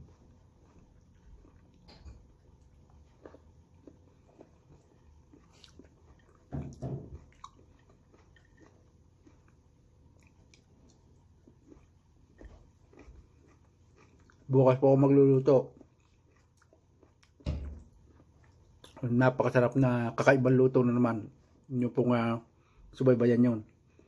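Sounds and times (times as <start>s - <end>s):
person chewing crisp fruit: 0.0s - 21.7s.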